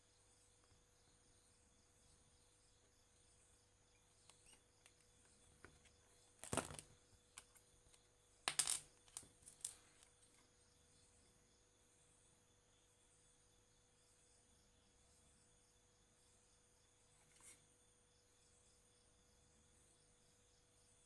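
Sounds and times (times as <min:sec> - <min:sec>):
faint steady hum: 0:00.0 - 0:21.0
small hard objects clattering: 0:06.4 - 0:07.6, 0:08.5 - 0:10.1.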